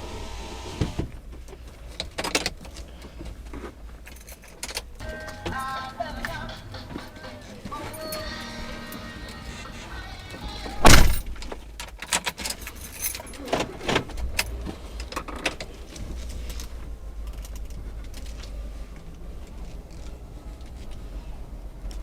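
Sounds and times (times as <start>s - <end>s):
car engine and road noise: 0.0s - 22.0s
clattering and rattling: 10.7s - 21.0s
loud thump: 10.8s - 11.6s.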